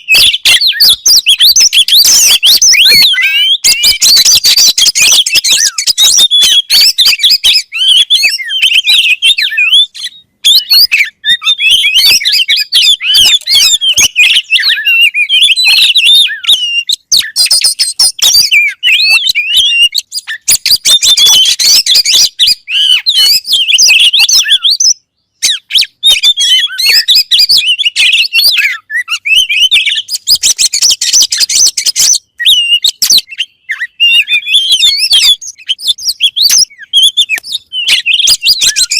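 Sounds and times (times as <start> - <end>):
bird singing: 0.0 - 38.9.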